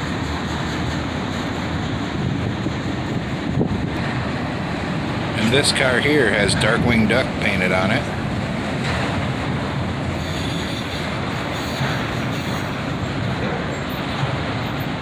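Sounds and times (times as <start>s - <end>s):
steel wheels on rails: 0.0s - 15.0s.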